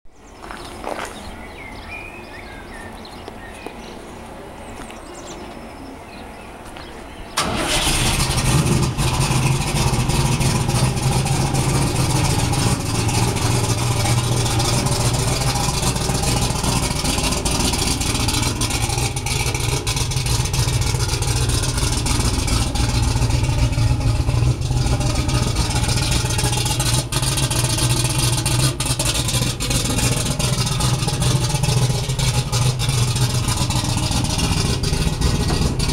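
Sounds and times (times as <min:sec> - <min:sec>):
drag car engine starting and running: 0:07.3 - 0:35.9.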